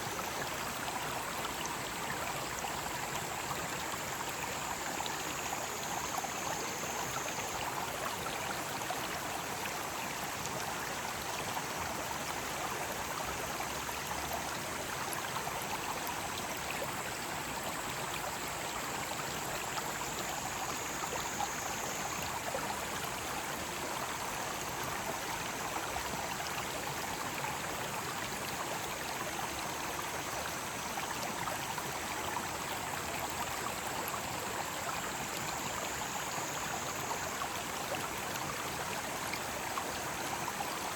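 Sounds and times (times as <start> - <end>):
stream running over rocks: 0.0 - 40.9
cicadas droning: 1.8 - 9.4, 15.4 - 27.6.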